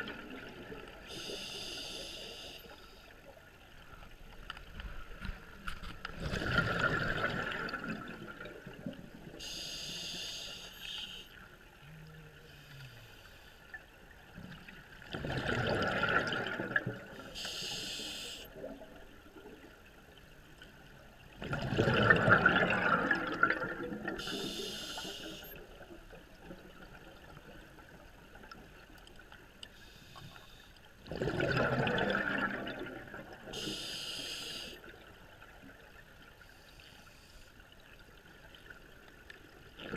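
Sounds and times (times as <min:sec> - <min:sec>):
regulator inhalation hiss: 0:01.1 - 0:03.1, 0:09.4 - 0:11.3, 0:17.3 - 0:18.5, 0:24.2 - 0:25.6, 0:33.6 - 0:34.8
exhaled bubbles rushing: 0:06.1 - 0:09.4, 0:15.0 - 0:17.2, 0:21.4 - 0:24.4, 0:31.0 - 0:33.5, 0:39.7 - 0:39.9.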